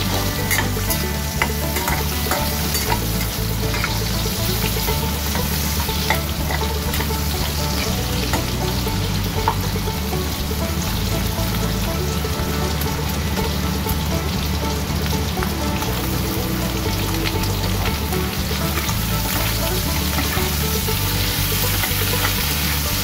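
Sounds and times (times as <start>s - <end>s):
metal spatula scraping: 0.0s - 7.0s
meat sizzling in a wok: 0.0s - 8.8s, 18.5s - 23.0s.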